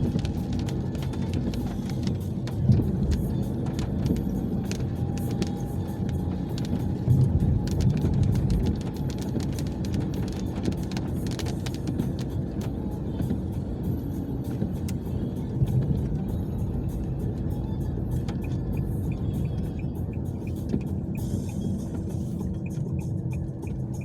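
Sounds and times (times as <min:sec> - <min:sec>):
raindrops tapping on car: 0:00.0 - 0:24.0
road and engine rumble: 0:00.0 - 0:24.0.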